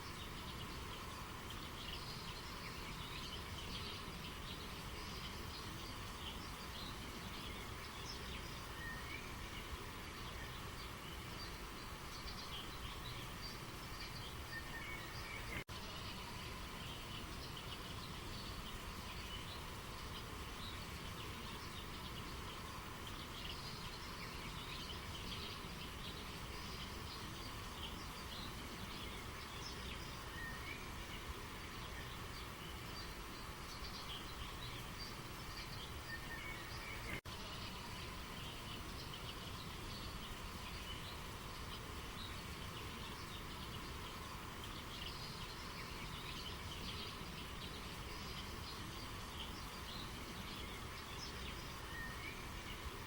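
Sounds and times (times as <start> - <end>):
flowing river water: 0.0 - 53.0
small birds chirping: 0.0 - 53.0.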